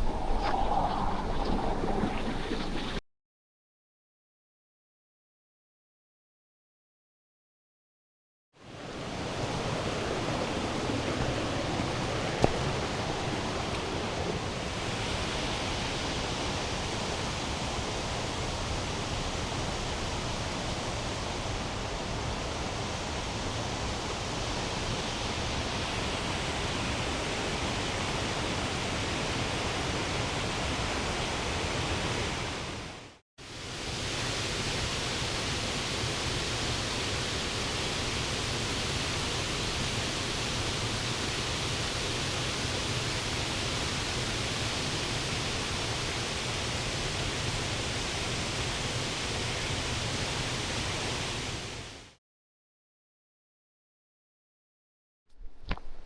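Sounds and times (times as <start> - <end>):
stream rapids rushing: 0.0 - 3.0, 8.7 - 16.0.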